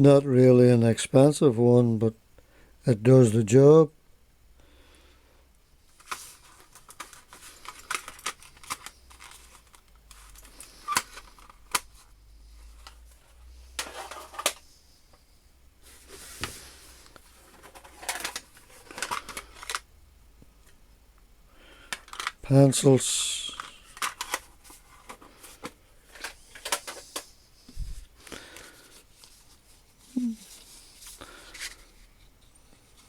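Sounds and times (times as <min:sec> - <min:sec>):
paper rustles: 0:05.9 - 0:11.8.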